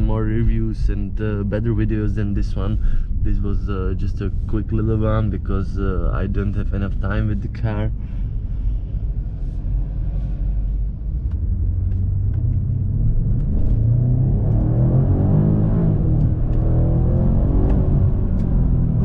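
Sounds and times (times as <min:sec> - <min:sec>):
car engine accelerating hard: 0:11.2 - 0:19.0.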